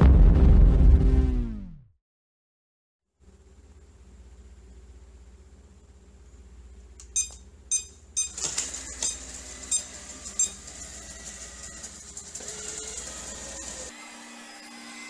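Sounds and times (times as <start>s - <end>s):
robot vacuum beeping: 7.2s - 13.9s
vacuum motor whirring: 8.3s - 14.2s.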